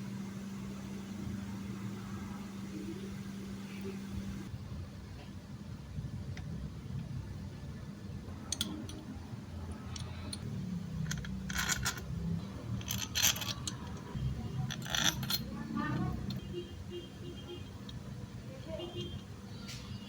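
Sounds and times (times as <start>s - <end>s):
low steady hum: 0.0s - 20.0s
small metal tools clinking: 9.7s - 16.5s.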